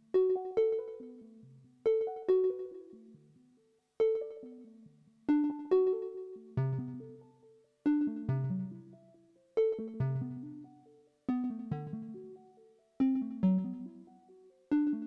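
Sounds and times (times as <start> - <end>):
plucked synthesizer notes: 4.0 - 15.0.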